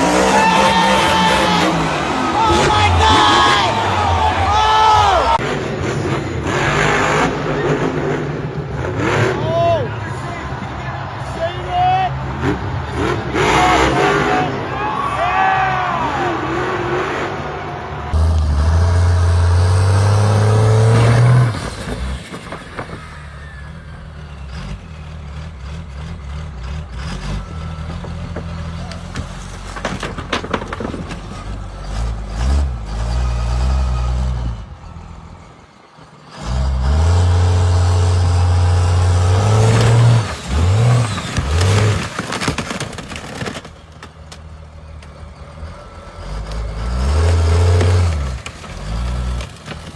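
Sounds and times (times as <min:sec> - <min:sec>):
truck engine revving: 0:00.0 - 0:49.9.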